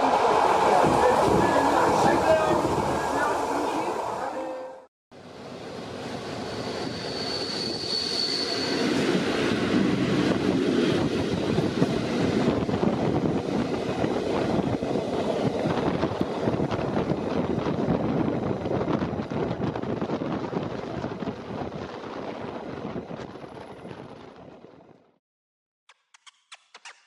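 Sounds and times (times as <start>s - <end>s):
train rumbling and rattling: 0.0s - 4.7s, 5.3s - 25.1s
high wheel squeal: 6.3s - 9.1s.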